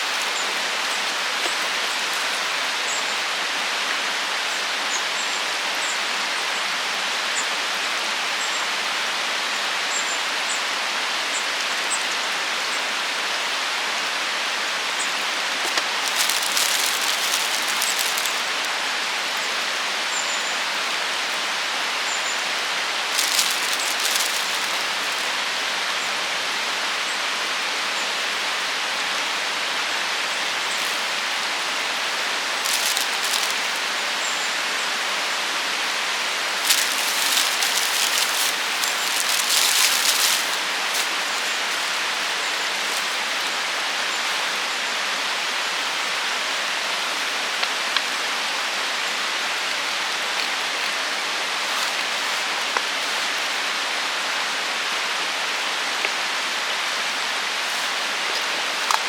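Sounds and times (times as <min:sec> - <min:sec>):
rain-like rushing hiss: 0:00.0 - 0:59.0
crackly noise bursts: 0:15.7 - 0:18.8, 0:23.1 - 0:25.4, 0:30.8 - 0:34.3, 0:36.4 - 0:41.7.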